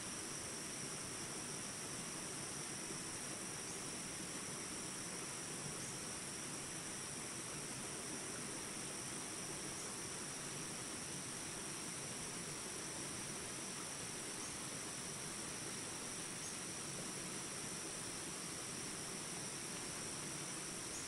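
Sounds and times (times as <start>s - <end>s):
high-pitched insect chorus: 0.0s - 21.0s
flowing water rushing: 10.8s - 21.0s.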